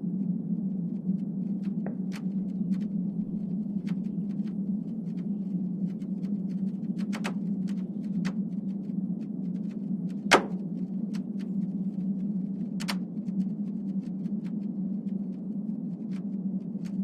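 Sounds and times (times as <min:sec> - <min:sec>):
steady low hum: 0:00.0 - 0:17.0
sharp pops and clicks: 0:10.1 - 0:11.3, 0:12.8 - 0:13.4.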